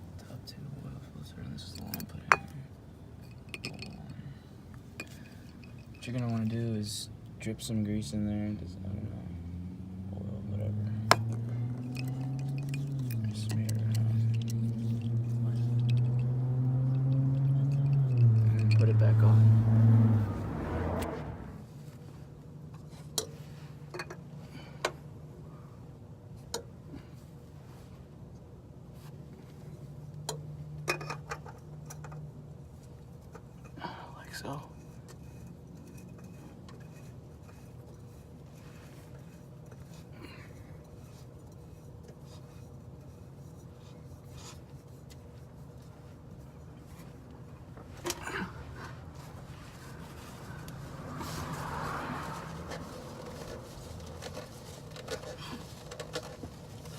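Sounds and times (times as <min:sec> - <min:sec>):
faint steady hum: 0:00.0 - 0:56.9
oil filter rubbing and scraping: 0:10.6 - 0:24.1, 0:30.8 - 0:56.9.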